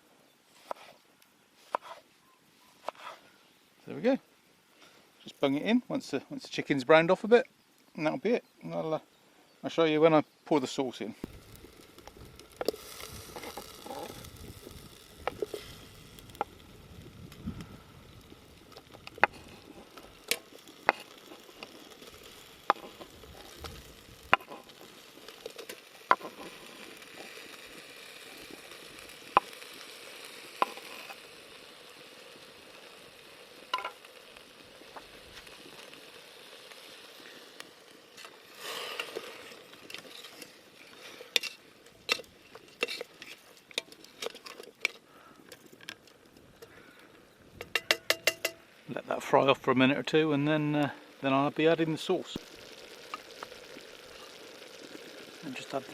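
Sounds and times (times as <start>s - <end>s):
food sizzling in a pot: 10.6s - 55.9s
sharp pops: 11.2s - 29.8s, 30.4s - 31.2s, 37.2s - 48.8s
stirring in a pot: 38.2s - 45.9s.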